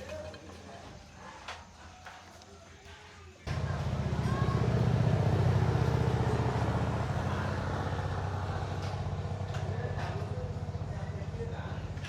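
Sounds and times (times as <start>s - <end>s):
small engine running: 3.5s - 12.0s.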